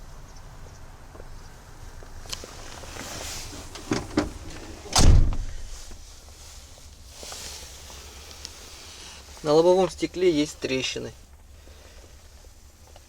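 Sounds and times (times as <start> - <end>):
truck door shutting thud: 3.4 - 5.7.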